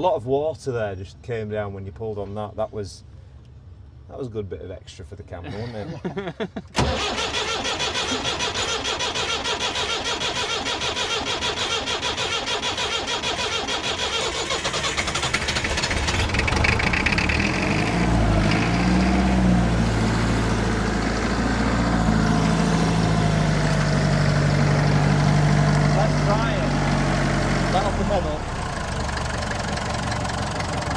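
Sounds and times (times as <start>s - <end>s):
diesel engine starting and idling: 6.8s - 30.9s
starter motor chugging: 6.8s - 30.9s.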